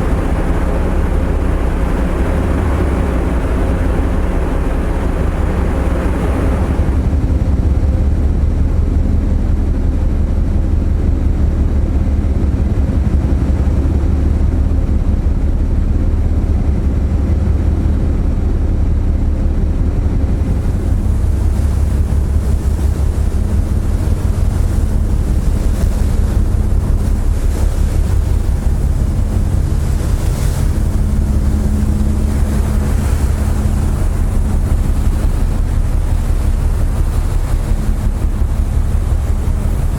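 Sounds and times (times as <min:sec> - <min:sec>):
hiss of churning wake: 0:00.0 - 0:07.4, 0:20.4 - 0:39.9
ship engines droning: 0:00.0 - 0:39.9
wind buffeting microphone: 0:00.0 - 0:39.9.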